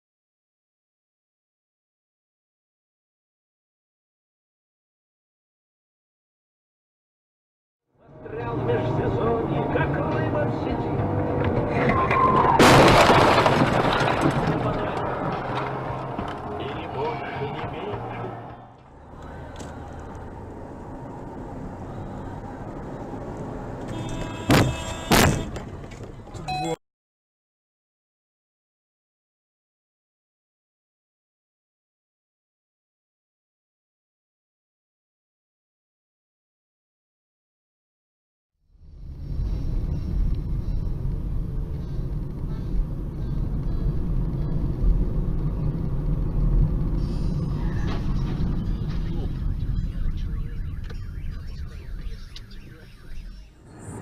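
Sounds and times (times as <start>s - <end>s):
car engine and road noise: 7.9s - 26.8s, 38.6s - 54.0s
brief higher tone: 26.5s - 26.8s
low hum: 38.7s - 54.0s.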